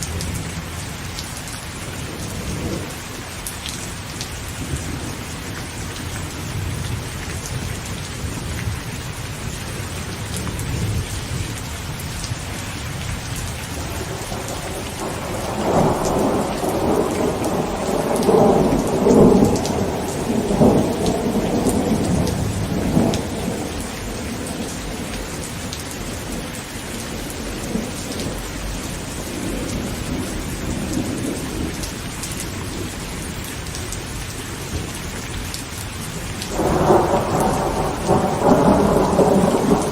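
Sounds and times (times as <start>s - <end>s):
heavy rain on a tent: 0.0s - 39.9s
rolling thunder: 13.6s - 33.2s, 36.4s - 39.9s.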